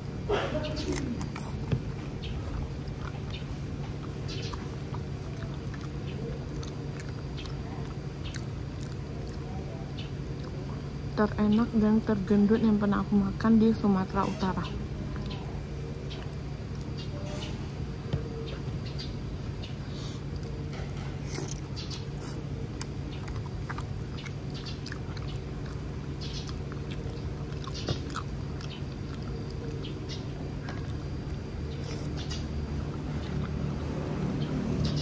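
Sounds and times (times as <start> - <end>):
wet chewing and lip-smacking: 0.8 - 9.6, 10.3 - 10.6, 21.2 - 34.1.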